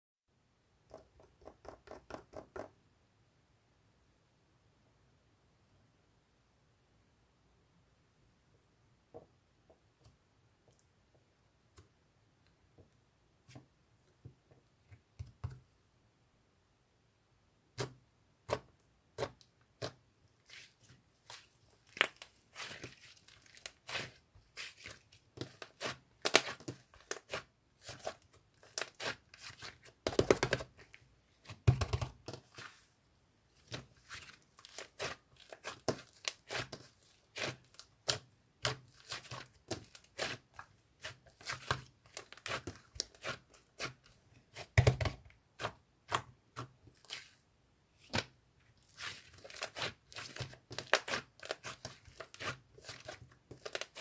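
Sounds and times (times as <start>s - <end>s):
slime squelches: 17.8s - 54.0s.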